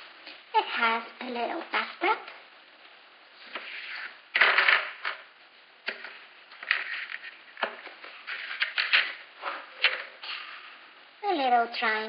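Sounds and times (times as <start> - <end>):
plastic toy pieces rustling: 6.0 - 9.2.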